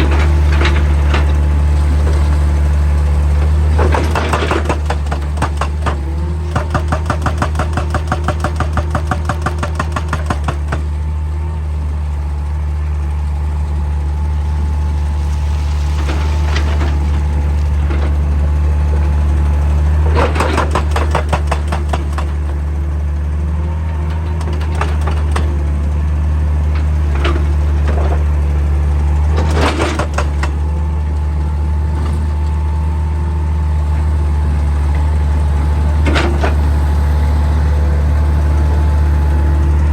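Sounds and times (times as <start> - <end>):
diesel engine running under load: 0.0 - 39.9
hydraulic breaker hammering rock: 3.5 - 11.0, 20.0 - 22.7, 29.3 - 30.6.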